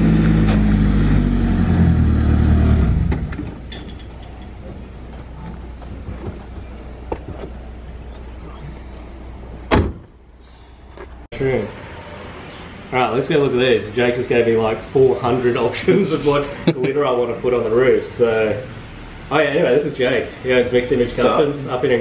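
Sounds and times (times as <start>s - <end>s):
car engine revving unevenly: 0.0s - 3.4s.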